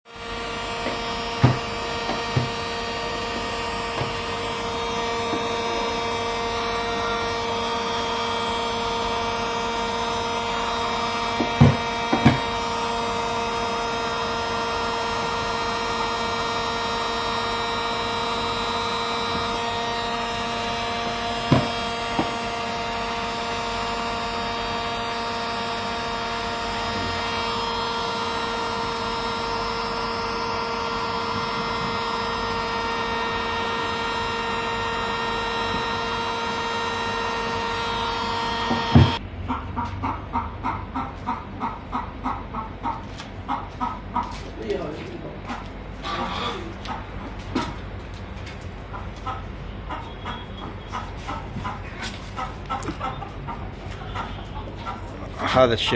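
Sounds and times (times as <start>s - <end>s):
steady machine hum: 0.0s - 55.9s
sharp knocks: 0.8s - 2.6s, 11.4s - 12.5s, 21.5s - 22.4s, 38.7s - 39.2s.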